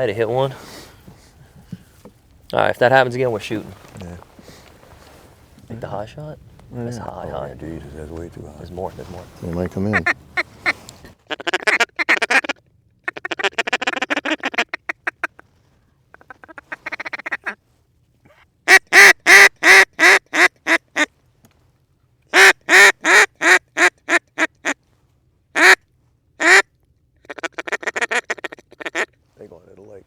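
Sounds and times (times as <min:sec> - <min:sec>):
duck call chatter and quacks: 0:09.4 - 0:15.4, 0:16.1 - 0:17.6, 0:18.3 - 0:21.1, 0:22.3 - 0:24.8, 0:25.6 - 0:25.8, 0:26.4 - 0:29.2.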